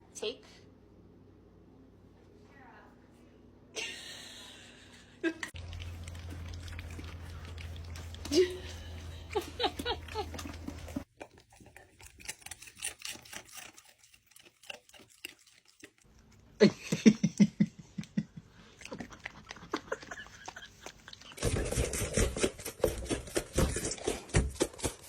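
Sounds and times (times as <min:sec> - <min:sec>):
dog chewing and crunching food: 0:05.5 - 0:16.6, 0:18.6 - 0:25.0.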